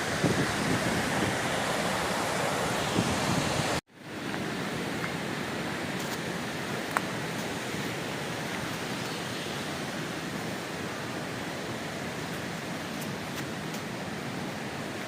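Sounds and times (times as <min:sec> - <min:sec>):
wind buffeting microphone: 0:00.0 - 0:03.8
waterfall rushing: 0:00.0 - 0:15.0.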